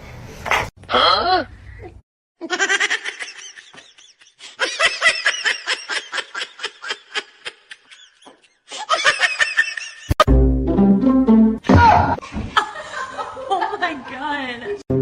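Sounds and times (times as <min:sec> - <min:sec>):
person laughing hard: 0:02.4 - 0:10.2.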